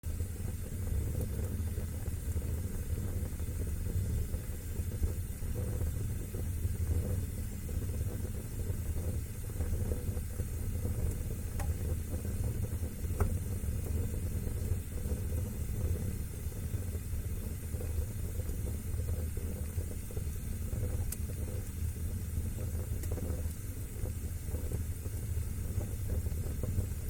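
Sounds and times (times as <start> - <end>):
fire crackles: 0.0 - 27.0
fire flames rushing: 0.0 - 27.0.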